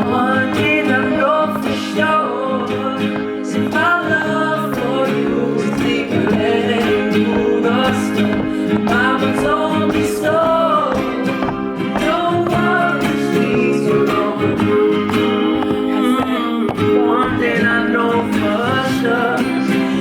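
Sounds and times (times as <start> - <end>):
acoustic guitar strummed: 0.0 - 20.0
man singing: 0.0 - 20.0.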